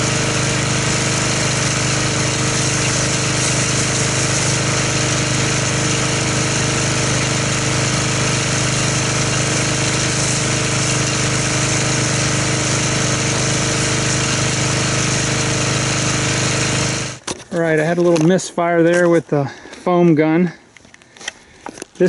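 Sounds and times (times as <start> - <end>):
pressure washer running: 0.0 - 17.2
spray hissing: 0.0 - 17.2.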